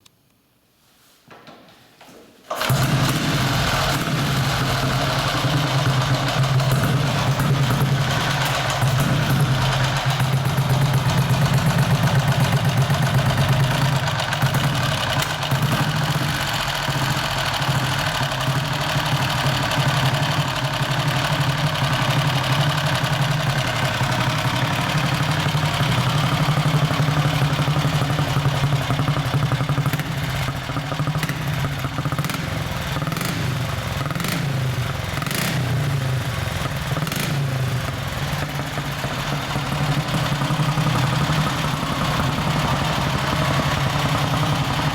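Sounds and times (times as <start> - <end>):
motorcycle engine idling: 2.6 - 44.9.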